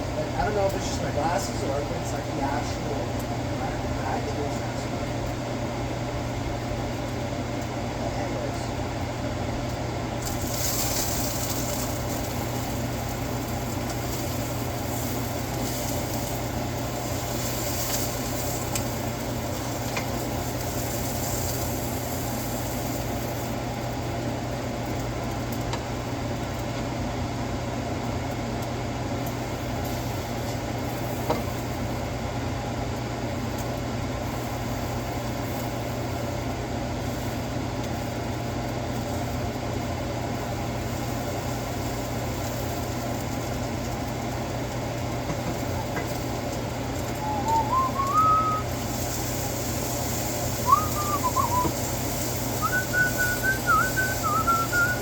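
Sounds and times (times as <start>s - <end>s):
steady low hum: 0.0s - 55.0s
food sizzling in a pan: 10.2s - 25.2s, 34.2s - 55.0s.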